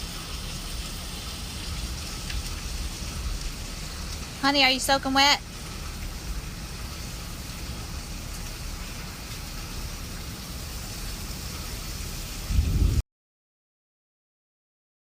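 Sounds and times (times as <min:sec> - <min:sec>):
steady rain falling: 0:00.0 - 0:13.0
low rumble: 0:12.4 - 0:13.0.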